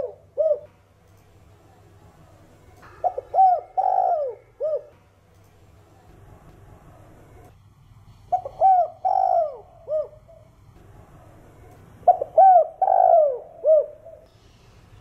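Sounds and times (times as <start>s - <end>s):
dove cooing: 0.0s - 0.7s, 3.0s - 5.0s, 8.3s - 10.5s, 12.1s - 14.3s.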